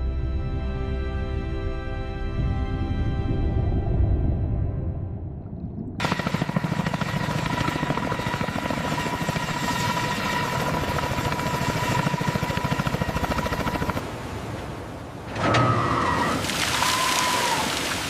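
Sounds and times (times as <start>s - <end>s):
helicopter rotors beating: 6.0s - 14.1s.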